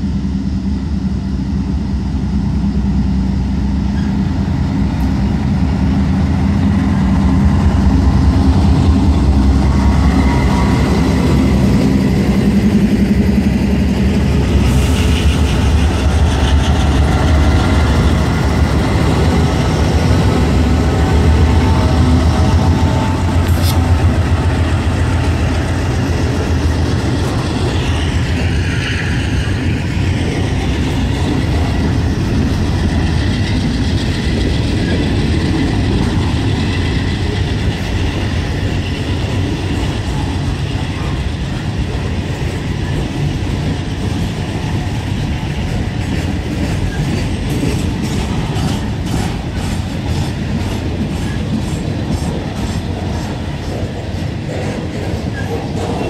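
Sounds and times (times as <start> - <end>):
locomotive engine drone: 0.0 - 56.0
train wheels rumbling on rail: 0.0 - 56.0
wheels clacking over rail joints: 29.4 - 56.0.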